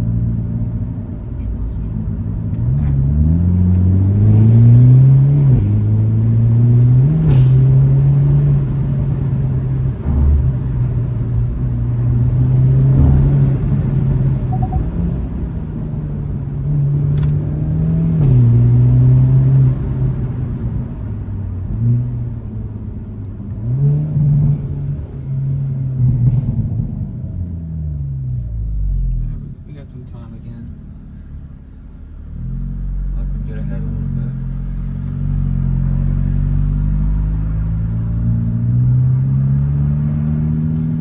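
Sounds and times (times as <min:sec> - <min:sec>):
car engine revving: 0:01.7 - 0:22.9.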